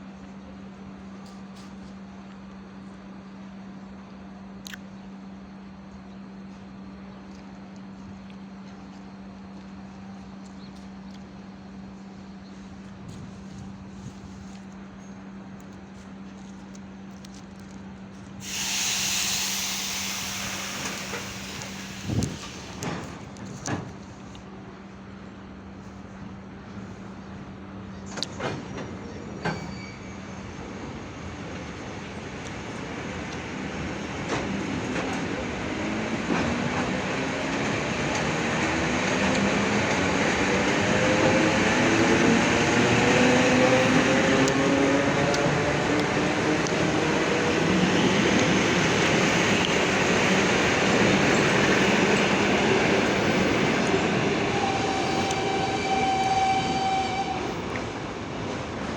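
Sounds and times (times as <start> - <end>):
wheels rumbling on rails: 6.5 - 58.9
compressed air hissing: 18.4 - 22.9
train traction motor whine: 18.4 - 23.2, 35.7 - 58.3.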